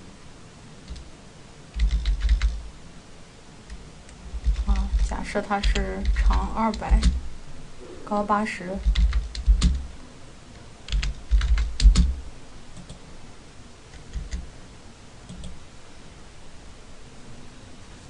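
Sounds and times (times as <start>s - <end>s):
keyboard keys clacking: 1.8s - 2.6s, 4.3s - 7.2s, 8.8s - 9.9s, 10.9s - 12.2s.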